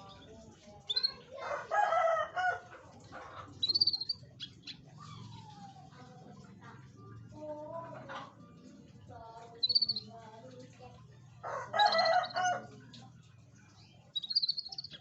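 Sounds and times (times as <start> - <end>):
high bird chirp: 0.9 - 1.2, 3.6 - 5.6, 9.6 - 10.1, 13.7 - 15.0.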